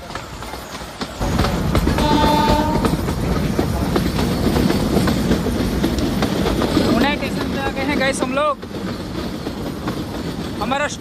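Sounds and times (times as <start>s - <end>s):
train wheels rumbling and clattering: 0.0s - 11.0s.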